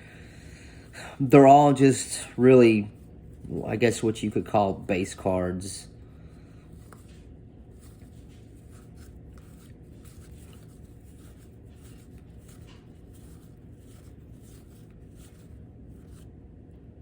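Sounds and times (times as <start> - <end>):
cards being flipped through: 6.7 - 16.3.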